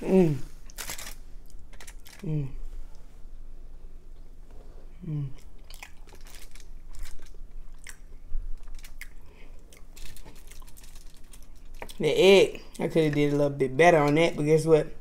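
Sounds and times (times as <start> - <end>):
person chewing: 0.0 - 2.6, 5.0 - 12.8.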